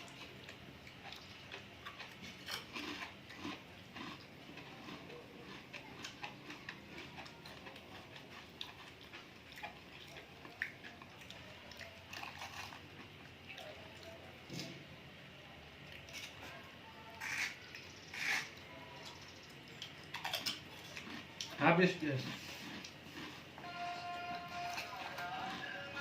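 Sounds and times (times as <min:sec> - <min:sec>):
person chewing with wet smacks: 0:00.0 - 0:14.7, 0:19.6 - 0:21.6, 0:22.2 - 0:23.5.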